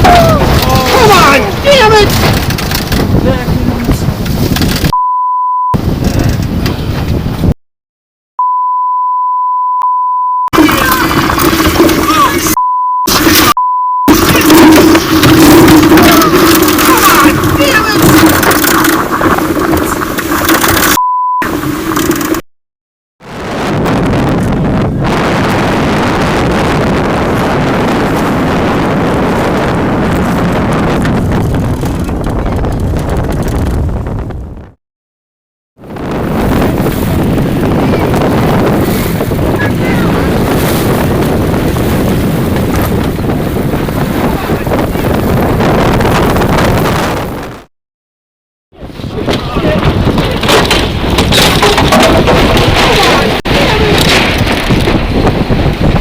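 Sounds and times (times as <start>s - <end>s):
wind noise on microphone: 0.0s - 5.0s, 5.7s - 7.6s, 10.6s - 22.4s, 23.2s - 34.8s, 35.8s - 47.7s, 48.8s - 56.0s
censor bleep: 4.9s - 5.8s, 8.4s - 10.6s, 12.6s - 14.2s, 20.9s - 21.6s.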